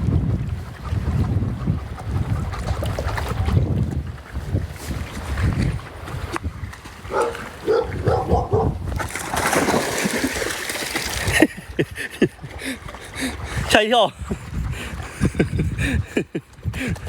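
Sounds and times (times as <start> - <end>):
water sloshing: 1.8 - 17.0
dog splashing in water: 6.7 - 11.6
dog crying: 7.1 - 8.8.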